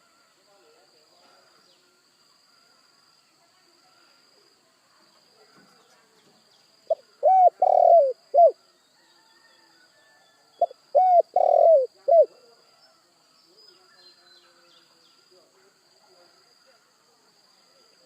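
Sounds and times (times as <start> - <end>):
dove cooing: 6.9 - 8.6, 10.6 - 12.4.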